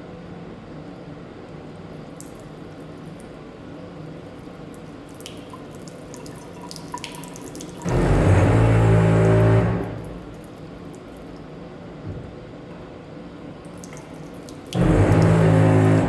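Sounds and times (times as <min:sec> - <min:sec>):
faucet humming: 0:02.2 - 0:11.5, 0:13.6 - 0:16.0
water rushing from faucet: 0:02.2 - 0:11.5, 0:13.6 - 0:16.0.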